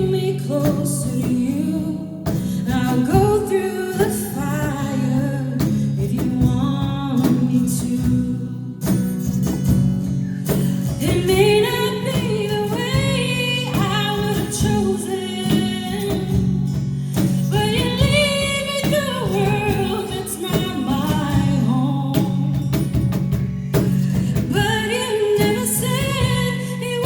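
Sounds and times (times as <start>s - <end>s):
woman singing: 0.0s - 9.5s, 10.4s - 27.0s
guitar chords: 7.2s - 27.0s.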